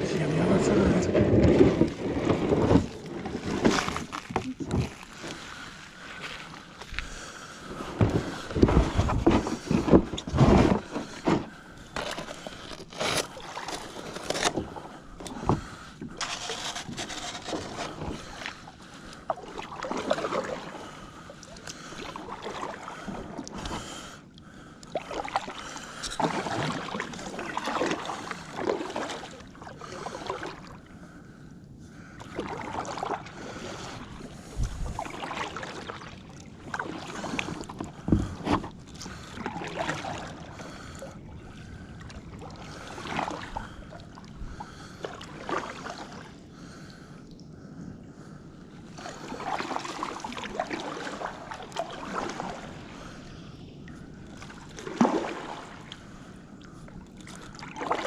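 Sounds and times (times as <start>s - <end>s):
water sloshing: 0.0s - 30.8s, 32.0s - 58.0s
paddle knocking against hull: 0.8s - 5.5s, 7.9s - 12.2s, 37.7s - 38.7s
paddle splashing into water: 26.2s - 29.4s, 54.7s - 55.9s.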